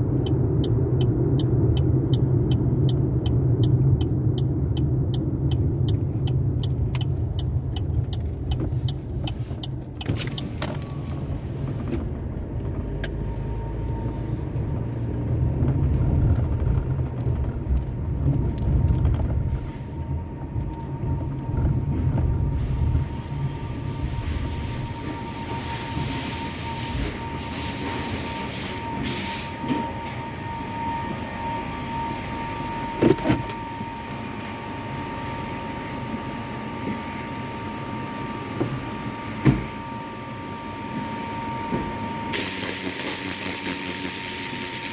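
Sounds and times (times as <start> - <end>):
steady whine: 15.9 - 44.9
brief sharp hiss: 25.3 - 29.6.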